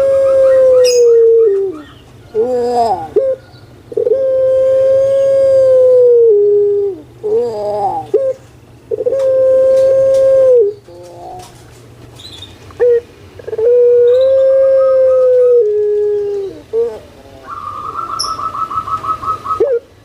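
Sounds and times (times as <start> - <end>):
dove cooing loudly: 0.0 - 11.6, 12.8 - 20.0.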